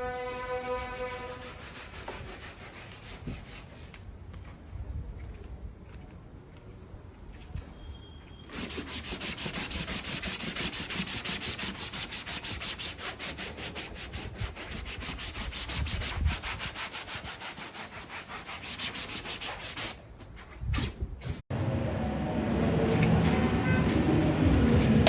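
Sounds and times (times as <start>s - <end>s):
brush scrubbing: 0.8s - 4.0s, 8.5s - 20.0s, 22.4s - 25.0s.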